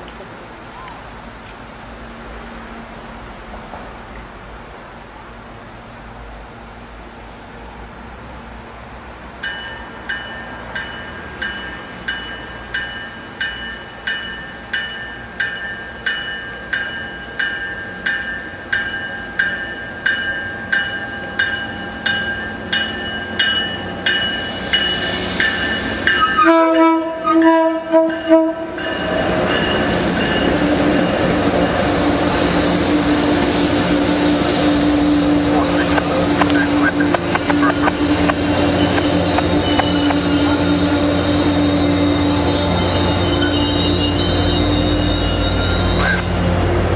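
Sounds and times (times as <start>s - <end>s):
train running past: 0.0s - 46.9s
locomotive bell ringing: 9.4s - 31.8s, 35.5s - 46.3s
locomotive horn short blasts: 26.2s - 28.7s.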